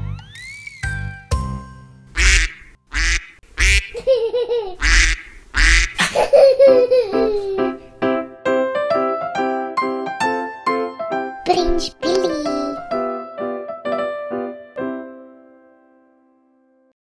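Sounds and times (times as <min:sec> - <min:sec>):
light children's music: 0:00.0 - 0:02.4, 0:06.2 - 0:16.3
duck quacking: 0:02.2 - 0:04.0, 0:04.8 - 0:06.1.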